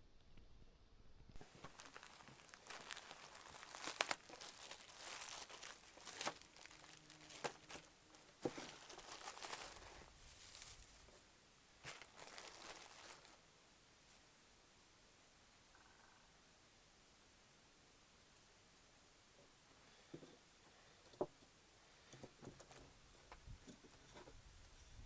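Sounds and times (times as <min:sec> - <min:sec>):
dry material rustling and crinkling: 0:01.4 - 0:13.4.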